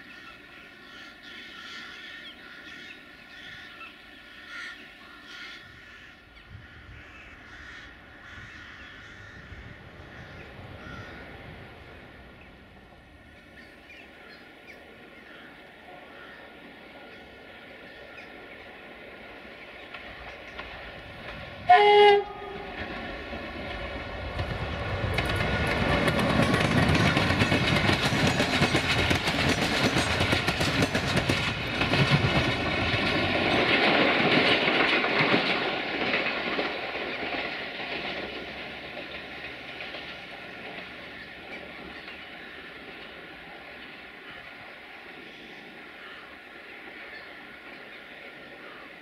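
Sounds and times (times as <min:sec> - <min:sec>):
train wheels clattering over rails: 0:19.2 - 0:44.4
locomotive horn blast: 0:21.7 - 0:22.8.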